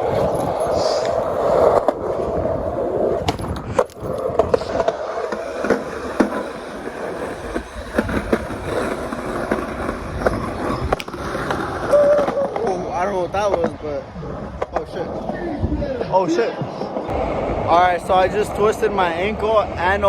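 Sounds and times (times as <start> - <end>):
skateboard wheels rolling on pavement: 0.0 - 20.0
skateboard clacks and knocks: 3.1 - 13.8.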